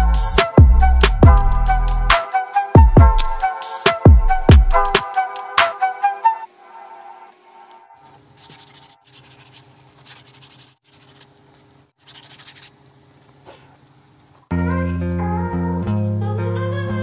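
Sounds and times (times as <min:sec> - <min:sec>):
sandpaper rubbing on styrofoam: 0:08.1 - 0:11.4, 0:12.0 - 0:12.8.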